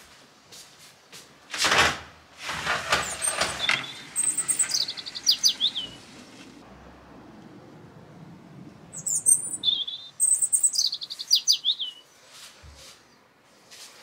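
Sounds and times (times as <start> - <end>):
small bird chirping: 3.0 - 6.2, 8.8 - 12.1.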